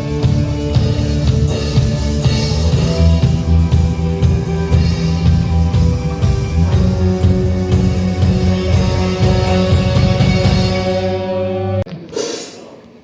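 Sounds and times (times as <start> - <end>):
rock music: 0.0 - 11.9.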